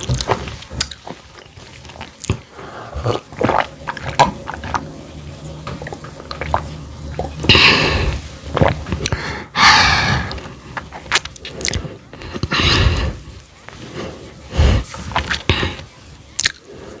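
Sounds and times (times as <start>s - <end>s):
chewing with wet mouth clicks: 0.0s - 4.8s, 10.3s - 12.6s, 16.4s - 16.7s.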